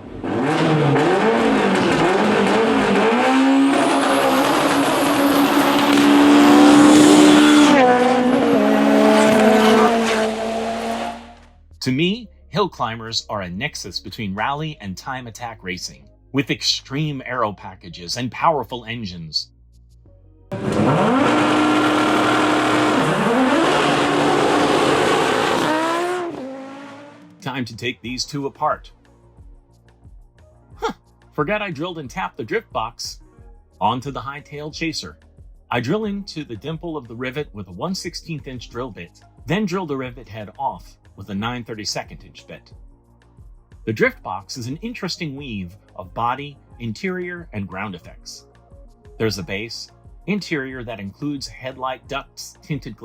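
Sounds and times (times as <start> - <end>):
race car engine revving: 0.0 - 11.5, 20.5 - 27.5.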